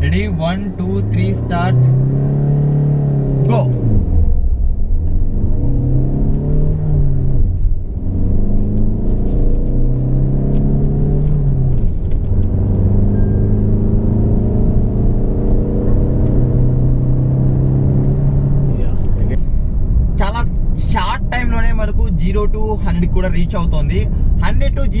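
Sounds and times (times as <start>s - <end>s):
car engine accelerating hard: 0.0s - 19.6s.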